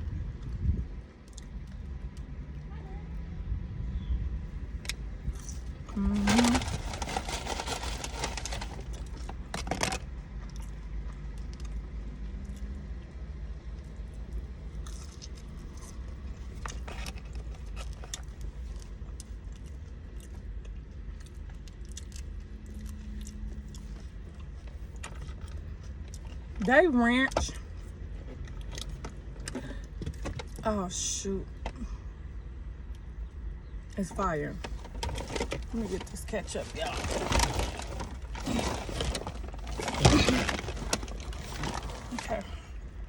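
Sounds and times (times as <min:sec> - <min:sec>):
steady low rumble: 0:00.0 - 0:12.1
biting and chewing: 0:04.7 - 0:12.8, 0:13.7 - 0:26.7, 0:27.4 - 0:30.6, 0:34.6 - 0:43.0
paper wrapper rustling: 0:05.8 - 0:10.0, 0:34.6 - 0:42.6.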